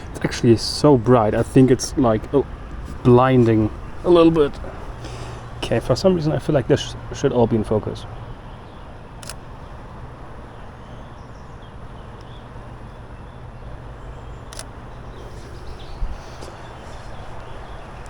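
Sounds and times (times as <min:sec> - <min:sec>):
low outdoor rumble: 0:00.0 - 0:18.0
camera shutter clicking: 0:09.2 - 0:09.4, 0:14.5 - 0:14.8.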